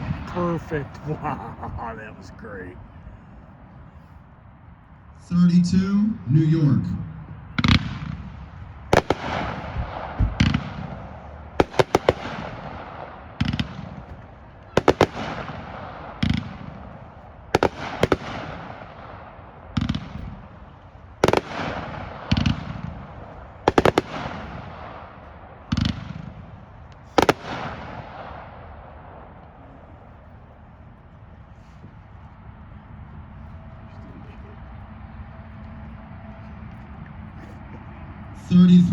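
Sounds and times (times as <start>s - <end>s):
fireworks banging: 0.0s - 2.8s, 7.6s - 20.6s, 21.2s - 29.4s.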